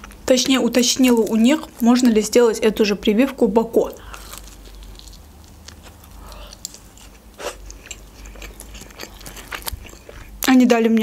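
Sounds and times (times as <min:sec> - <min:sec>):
chewing with wet mouth clicks: 0:04.0 - 0:11.0.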